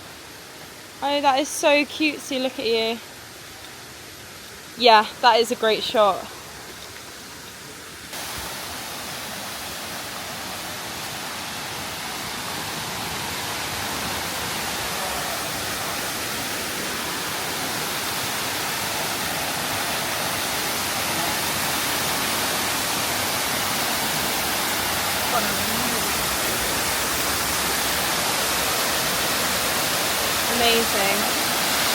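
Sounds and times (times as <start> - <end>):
waterfall rushing: 8.1 - 31.9.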